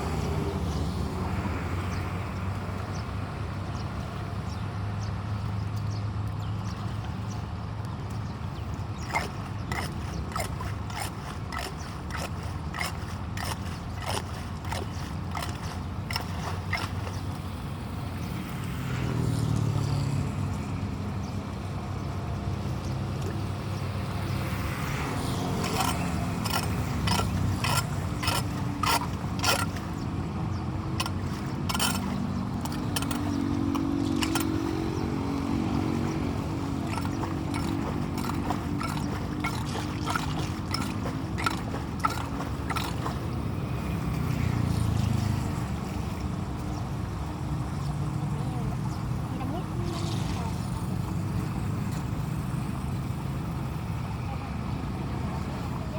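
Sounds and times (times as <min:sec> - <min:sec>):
rain and running water: 0:24.6 - 0:52.6.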